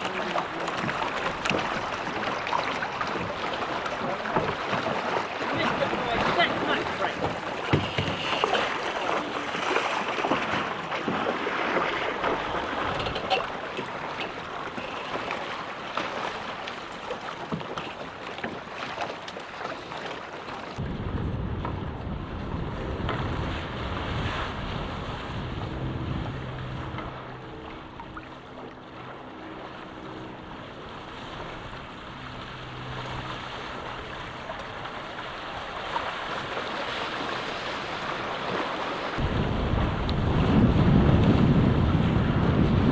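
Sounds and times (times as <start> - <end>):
water splashing against boat: 0.0 - 42.9
wind noise on microphone: 20.8 - 28.0, 39.2 - 42.9.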